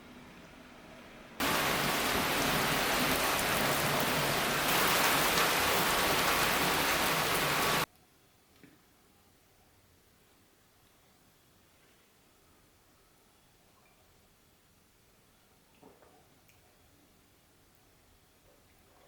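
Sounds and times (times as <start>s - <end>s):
heavy rain: 1.4s - 7.9s.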